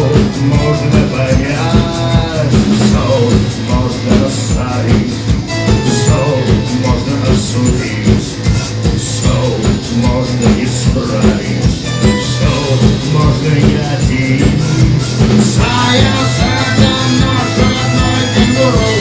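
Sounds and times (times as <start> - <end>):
bass guitar: 0.0 - 19.0
drum beat: 0.0 - 19.0
electric guitar: 0.0 - 19.0
high lead guitar line: 0.0 - 19.0.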